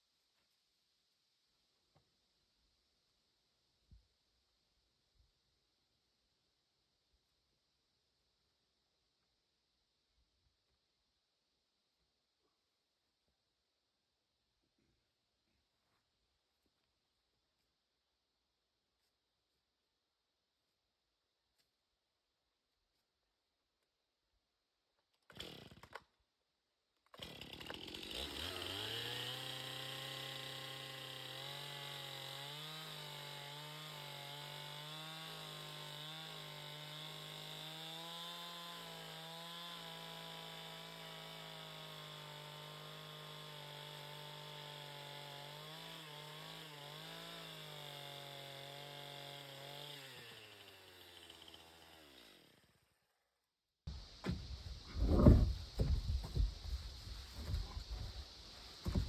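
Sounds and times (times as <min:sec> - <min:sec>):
chainsaw engine running: 0:27.2 - 0:52.6, 0:53.9 - 0:59.0.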